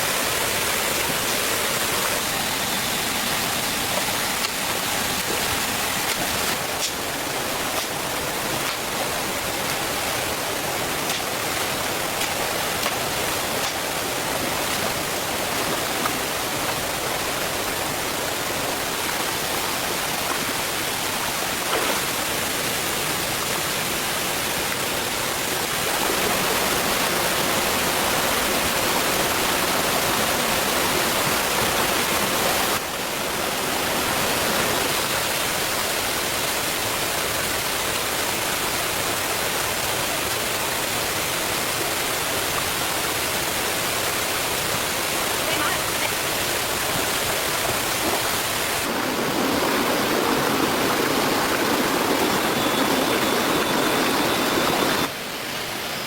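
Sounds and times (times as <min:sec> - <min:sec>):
steady rushing noise: 0:47.6 - 0:56.0.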